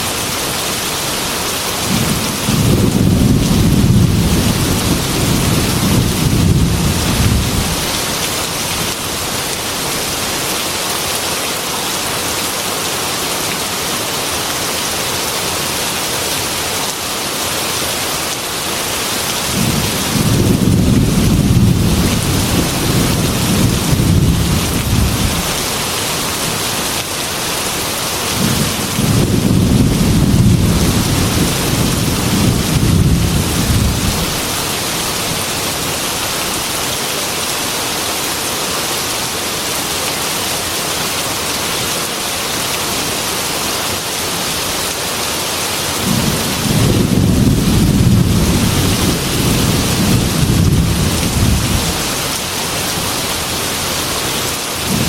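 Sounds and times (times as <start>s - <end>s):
heavy rain on a window: 0.0s - 55.0s
thunder rolling: 1.8s - 7.9s, 19.5s - 25.7s, 28.4s - 34.6s, 46.0s - 52.2s.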